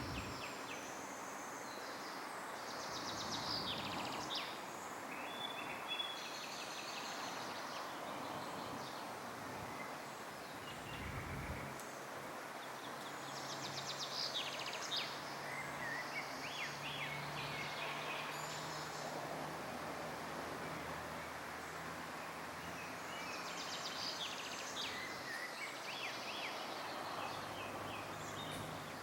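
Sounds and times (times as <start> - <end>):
songbirds trilling: 0.0 - 1.2, 9.6 - 11.8
steady outdoor hiss: 0.0 - 29.0.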